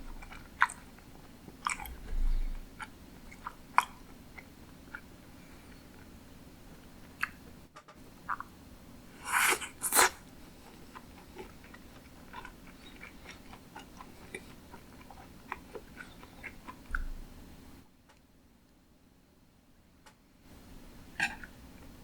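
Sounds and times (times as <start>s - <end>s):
person chewing: 0.1s - 5.1s, 9.2s - 17.0s.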